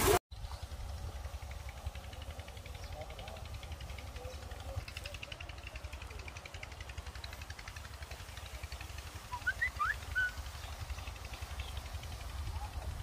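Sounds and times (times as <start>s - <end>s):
bird chirping: 9.3s - 11.9s.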